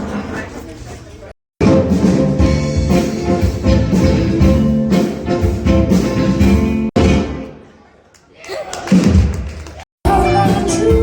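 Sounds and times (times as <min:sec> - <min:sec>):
background music with drum beat: 0:01.6 - 0:07.5, 0:08.9 - 0:11.0.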